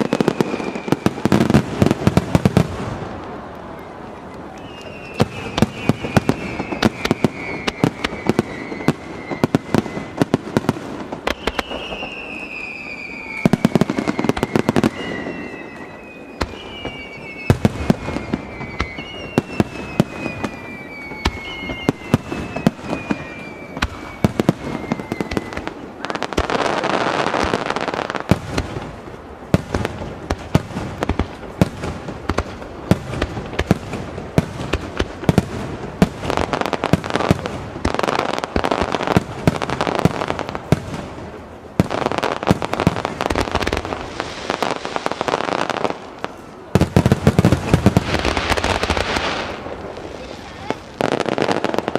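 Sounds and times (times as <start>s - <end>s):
fireworks whistles falling in pitch: 0.0s - 2.6s, 3.7s - 28.9s
fireworks bangs and crackles: 0.0s - 51.9s.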